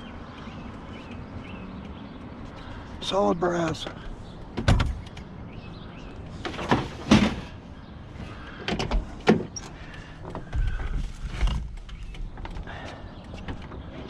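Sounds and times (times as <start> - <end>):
scrap metal knocks and clunks: 6.3 - 7.6.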